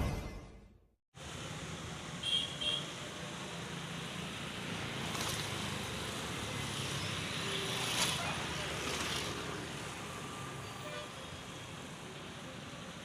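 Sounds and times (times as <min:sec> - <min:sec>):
road traffic noise: 0:01.2 - 0:13.0.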